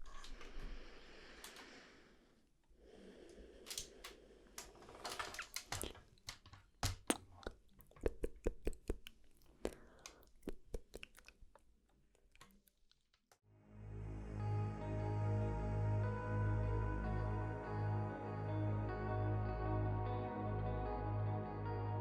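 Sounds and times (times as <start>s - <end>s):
tongue and lip clicks: 7.0s - 13.3s.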